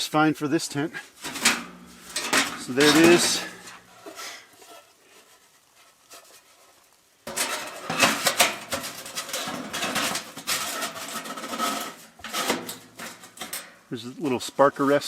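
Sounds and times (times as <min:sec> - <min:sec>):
metal stove parts rattling: 0:01.2 - 0:04.8, 0:07.3 - 0:13.9.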